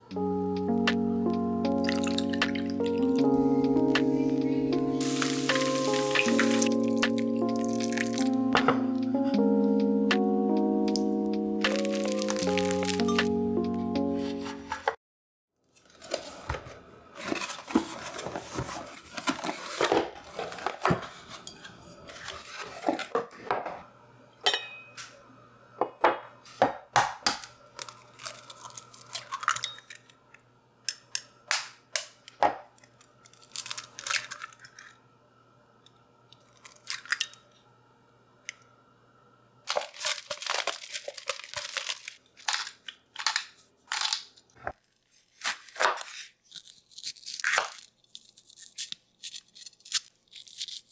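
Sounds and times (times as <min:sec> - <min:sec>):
crinkling and tearing: 0:05.0 - 0:08.4, 0:11.7 - 0:13.3, 0:27.8 - 0:30.1, 0:32.8 - 0:35.0, 0:36.4 - 0:37.3, 0:39.7 - 0:50.9.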